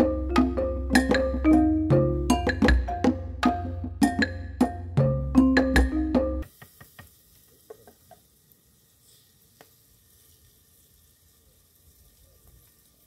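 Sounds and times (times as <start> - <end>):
faint sizzling in hot oil: 6.4 - 13.0.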